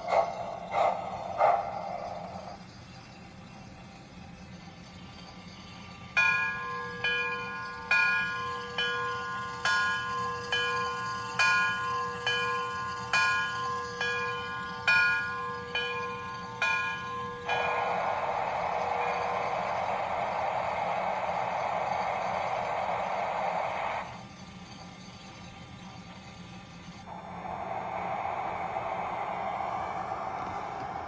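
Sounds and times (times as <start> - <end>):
steam hissing: 0.0 - 31.0
locomotive bell ringing: 5.8 - 22.8.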